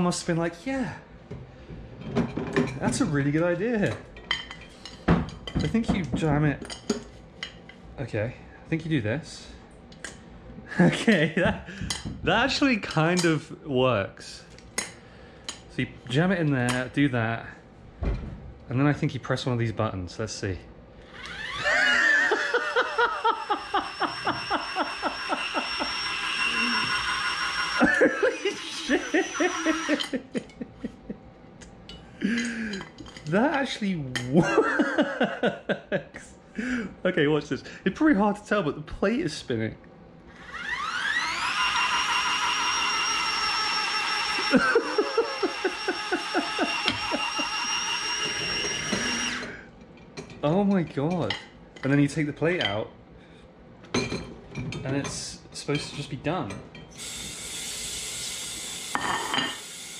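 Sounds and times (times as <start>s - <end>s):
dishwasher motor whining: 21.0s - 31.0s, 40.3s - 49.7s, 56.8s - 59.9s.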